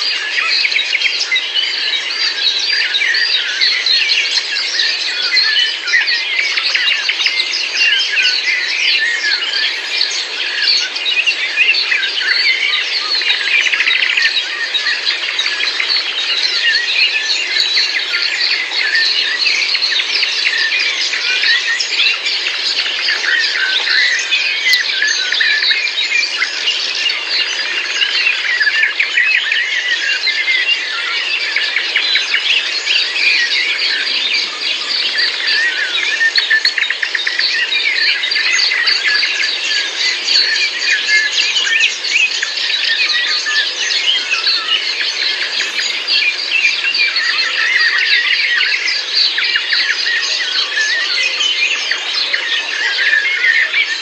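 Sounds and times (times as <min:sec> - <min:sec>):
many birds chirping and singing: 0:00.0 - 0:54.0.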